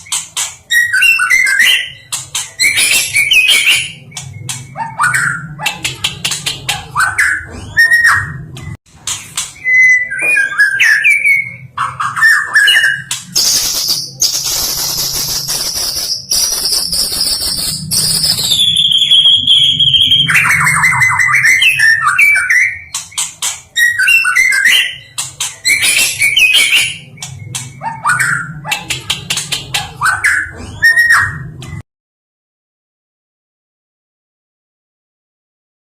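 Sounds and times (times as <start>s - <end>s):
bird singing whistles and trills: 0.0s - 5.6s, 9.6s - 23.2s, 23.8s - 28.7s, 30.0s - 31.5s.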